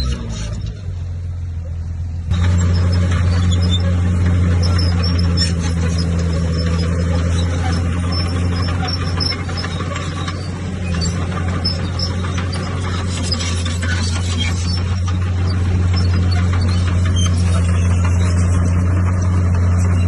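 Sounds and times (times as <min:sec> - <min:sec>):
bulldozer diesel engine droning: 0:00.0 - 0:20.0
machine clattering and grinding: 0:02.3 - 0:20.0.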